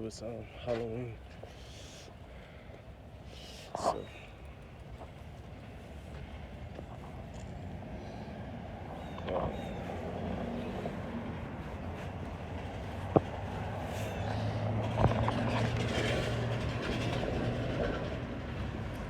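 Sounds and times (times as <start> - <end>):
vehicle passing by: 7.8 - 19.0.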